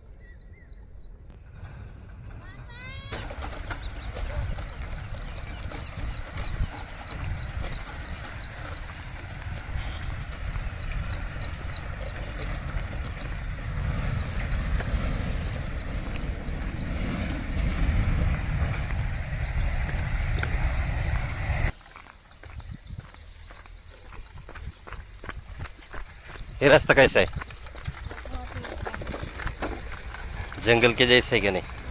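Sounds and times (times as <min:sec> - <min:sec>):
bird chirping: 0:00.0 - 0:01.5, 0:02.4 - 0:31.9
steady low rumble: 0:00.0 - 0:21.8.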